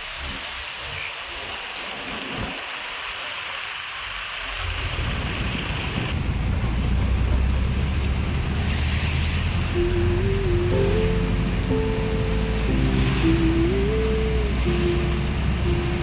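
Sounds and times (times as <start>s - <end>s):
heavy rain hissing: 0.0s - 6.2s, 8.2s - 16.0s
vehicle driving on wet road: 0.0s - 16.0s
tune: 9.8s - 16.0s.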